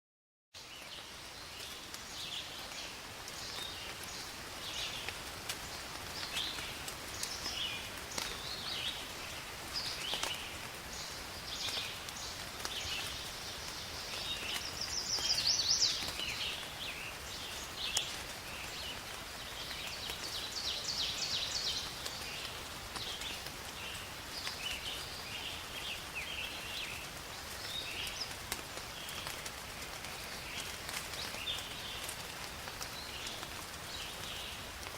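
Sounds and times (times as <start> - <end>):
small birds chirping: 0.6 - 34.8
rain hissing: 0.6 - 34.9
drip-like ticks: 17.9 - 18.4.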